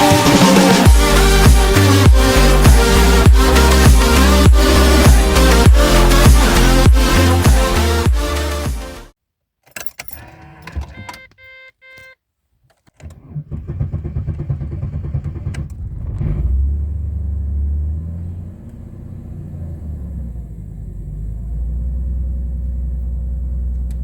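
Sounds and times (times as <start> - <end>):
car engine idling: 0.0 - 8.7, 13.5 - 24.0
keys rattling in ignition: 9.6 - 12.2
warning chime beeps: 11.0 - 12.2
engine starter cranking: 12.9 - 16.6.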